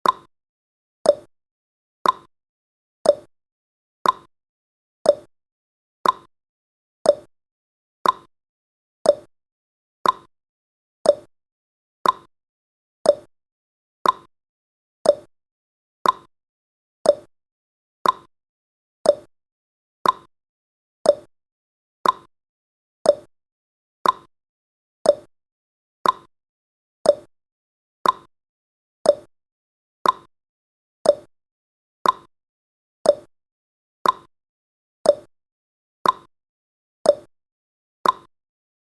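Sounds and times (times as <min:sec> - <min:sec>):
clock ticking: 0:02.0 - 0:02.3, 0:04.0 - 0:04.3, 0:06.0 - 0:06.3, 0:08.0 - 0:08.3, 0:10.0 - 0:10.3, 0:12.0 - 0:12.3, 0:13.1 - 0:13.3, 0:14.0 - 0:14.3, 0:15.1 - 0:15.3, 0:16.0 - 0:16.3, 0:17.1 - 0:17.3, 0:18.0 - 0:18.3, 0:20.0 - 0:20.3, 0:21.1 - 0:21.3, 0:22.0 - 0:22.3, 0:24.0 - 0:24.3, 0:26.0 - 0:26.3, 0:28.0 - 0:28.3, 0:29.1 - 0:29.3, 0:30.0 - 0:30.3, 0:31.1 - 0:31.3, 0:32.0 - 0:32.3, 0:33.1 - 0:33.3, 0:34.0 - 0:34.3, 0:35.1 - 0:35.3, 0:36.0 - 0:36.3, 0:38.0 - 0:38.3.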